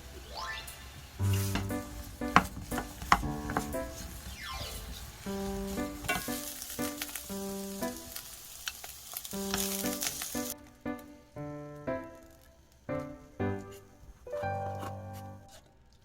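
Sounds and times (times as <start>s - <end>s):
background piano music: 0.0s - 8.5s, 9.2s - 15.6s
food sizzling in a pan: 0.0s - 10.6s
stirring: 1.2s - 6.4s.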